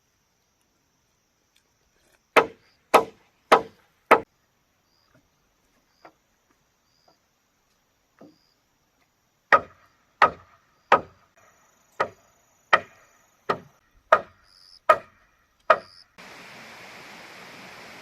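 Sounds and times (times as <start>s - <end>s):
blade chopping wood: 2.0s - 4.3s, 9.6s - 11.2s, 12.0s - 15.9s
steady hiss: 16.2s - 18.0s.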